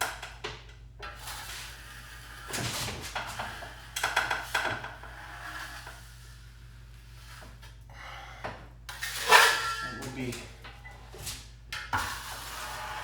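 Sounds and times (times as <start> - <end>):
drywall knife scraping compound: 4.9 - 6.4, 11.9 - 13.0.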